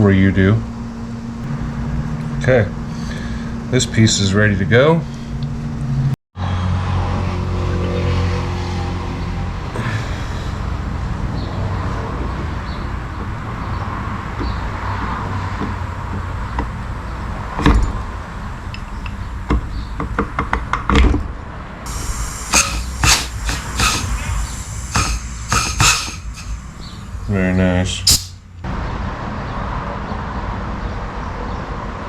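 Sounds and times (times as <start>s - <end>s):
steady low hum: 21.9s - 28.6s.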